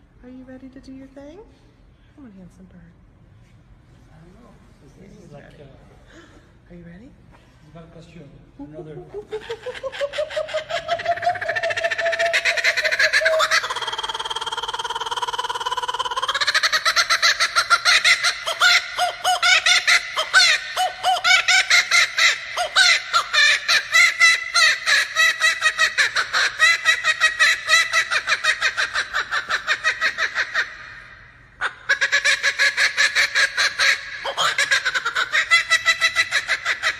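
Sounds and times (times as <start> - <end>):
kookaburra laughing call: 8.8 - 36.9.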